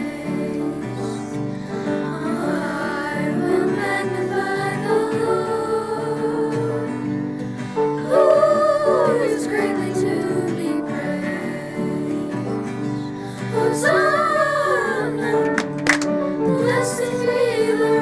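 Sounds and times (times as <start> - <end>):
voices singing worship song: 0.0 - 18.0
instrumental accompaniment: 13.6 - 17.8.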